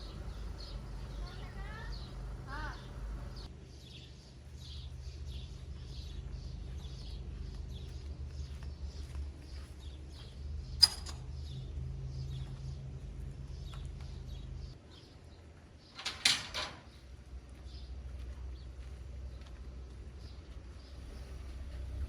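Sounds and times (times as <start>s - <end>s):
low hum: 0.0s - 9.4s
birds chirping: 0.0s - 22.0s
sharp ringing clink: 10.8s - 11.3s.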